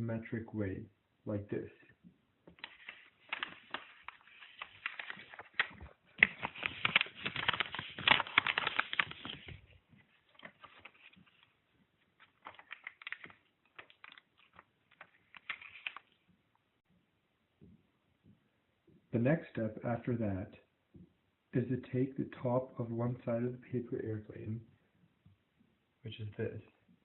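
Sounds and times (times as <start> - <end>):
paper clicks and rustles: 2.5 - 16.2
paper crinkling and crackling: 2.5 - 16.2.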